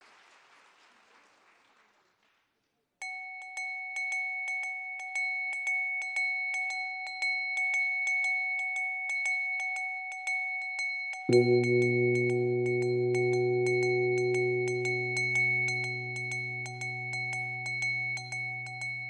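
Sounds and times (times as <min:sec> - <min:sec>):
metal percussion ringing: 0:11.3 - 0:19.0.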